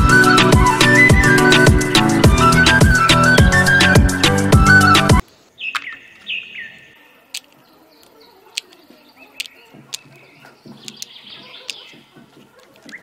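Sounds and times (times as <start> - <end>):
small birds chirping: 5.2 - 13.0.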